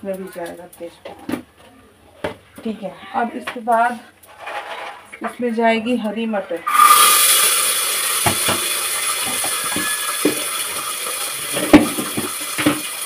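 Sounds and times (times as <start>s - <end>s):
peas sizzling in hot oil: 6.2s - 13.0s.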